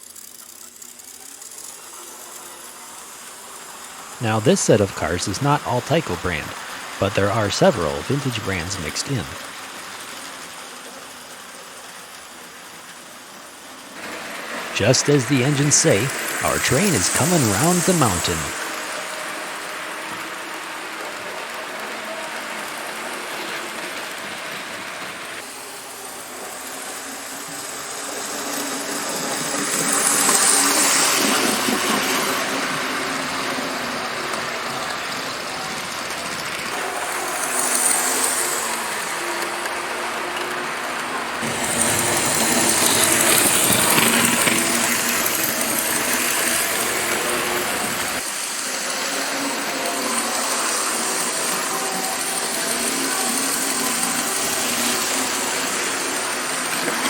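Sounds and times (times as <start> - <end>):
toy train motor hum: 0.0 - 4.2, 9.3 - 14.7, 15.6 - 16.4, 17.3 - 57.0
wheels rattling over track: 19.3 - 48.2.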